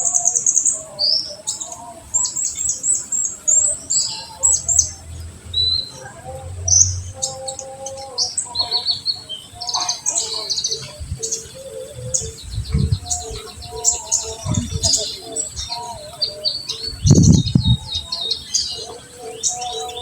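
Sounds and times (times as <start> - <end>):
lower whistled bird notes: 0.0 - 20.0
bird chirping and trilling: 2.3 - 20.0
short low rumbles: 10.8 - 11.4, 12.0 - 13.7, 14.4 - 15.0, 16.9 - 18.0.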